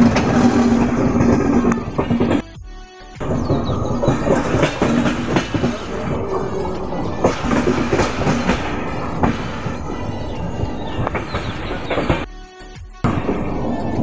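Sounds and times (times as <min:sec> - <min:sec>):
wheels clacking over rail joints: 0:00.0 - 0:02.6, 0:03.2 - 0:12.3, 0:13.0 - 0:14.0
train rumbling: 0:00.0 - 0:12.3, 0:13.0 - 0:14.0.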